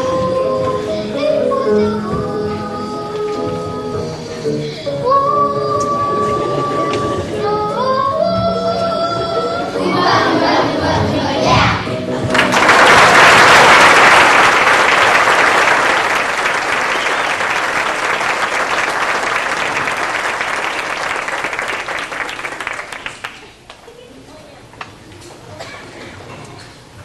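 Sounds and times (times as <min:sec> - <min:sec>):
children singing with music: 0:00.0 - 0:12.6
audience clapping: 0:12.2 - 0:24.0.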